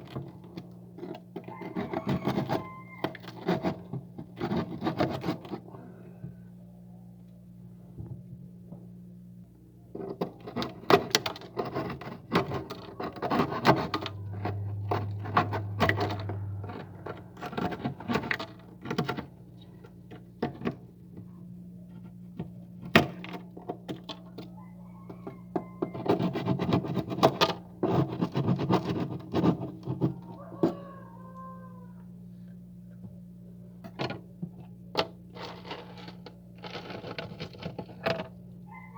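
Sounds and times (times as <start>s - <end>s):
steady low hum: 0.0s - 38.9s
ice being scraped and chipped: 10.1s - 14.6s, 26.0s - 30.0s, 35.4s - 38.3s.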